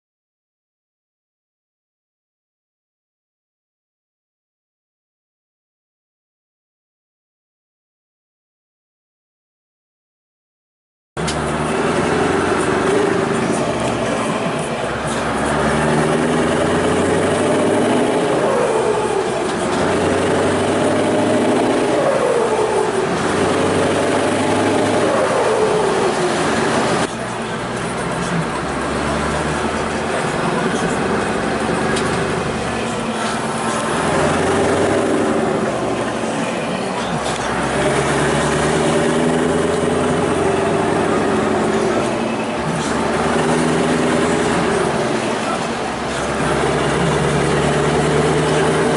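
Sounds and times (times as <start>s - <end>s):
diesel engine running loud: 11.2s - 48.9s.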